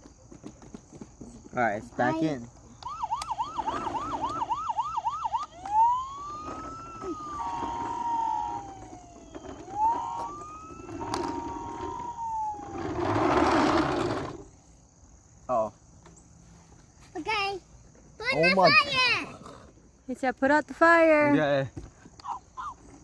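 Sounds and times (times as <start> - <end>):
toy electronic siren: 2.8 - 14.2.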